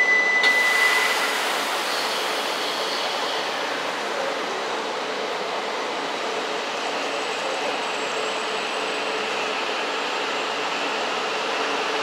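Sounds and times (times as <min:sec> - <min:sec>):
train hiss and rushing noise: 0:00.4 - 0:12.0.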